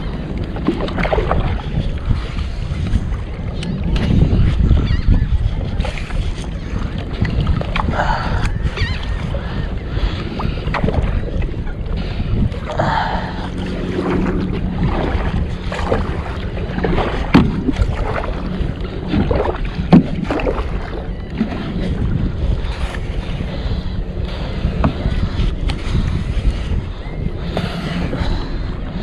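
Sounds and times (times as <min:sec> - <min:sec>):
paddle splashing water: 0:00.0 - 0:04.2, 0:09.2 - 0:26.7
wind rumbling on microphone: 0:00.0 - 0:29.0.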